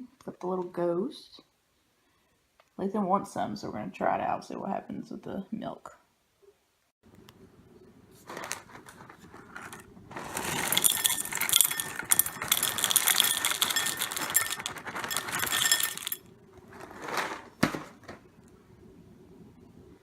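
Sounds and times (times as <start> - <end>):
cereal poured into a bowl: 9.6 - 16.2.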